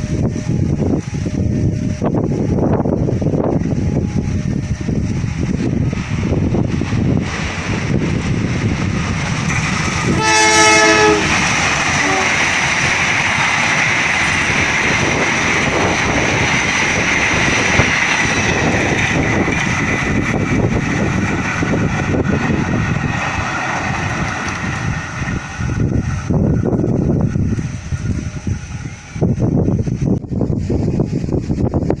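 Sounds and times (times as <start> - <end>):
train rumble and wheel noise: 0.0 - 32.0
train horn blast: 10.0 - 12.6.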